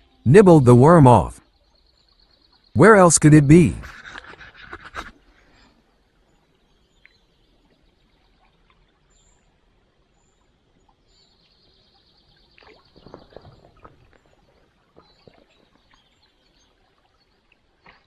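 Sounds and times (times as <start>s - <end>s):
splashes and knocks: 12.8s - 14.1s.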